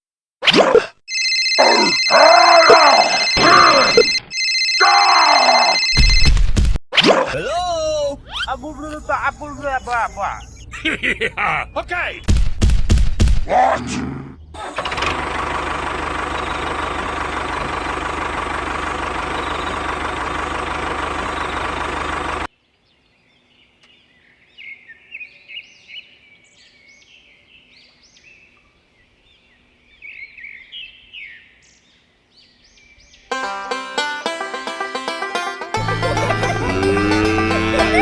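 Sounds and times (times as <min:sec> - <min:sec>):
birds chirping: 0:07.4 - 0:12.3, 0:14.2 - 0:33.4
loud machine running: 0:14.6 - 0:22.5.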